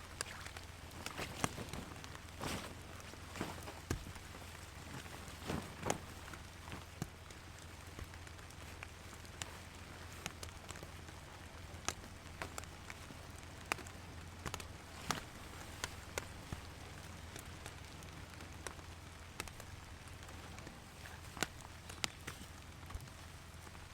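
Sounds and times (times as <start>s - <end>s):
steady rain falling: 0.0s - 23.9s
soft thuds: 0.1s - 7.4s.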